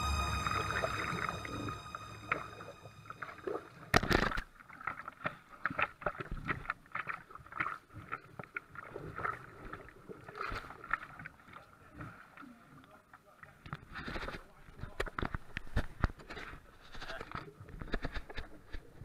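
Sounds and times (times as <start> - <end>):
kayak paddle splashing: 3.2 - 14.5
small waves slapping hull: 4.2 - 16.0.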